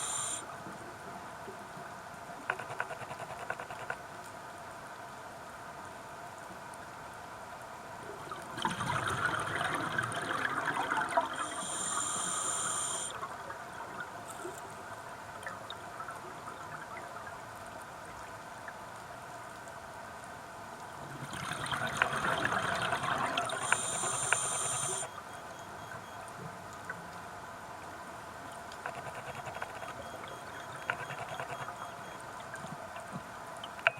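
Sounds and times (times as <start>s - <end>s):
regulator whistling hiss: 0.0s - 0.4s, 11.4s - 13.1s, 23.6s - 25.1s
crackling exhaust bubbles underwater: 0.0s - 4.9s, 5.8s - 33.9s
faint steady crackle: 0.0s - 33.9s.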